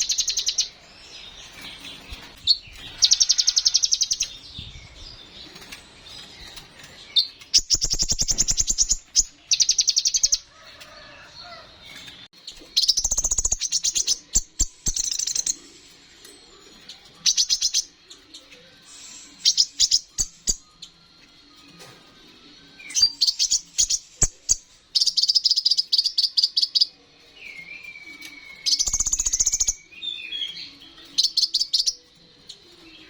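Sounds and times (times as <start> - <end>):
bird singing rapid high-pitched trills: 7.2 - 10.4, 12.8 - 15.6, 22.9 - 26.9, 28.6 - 32.0.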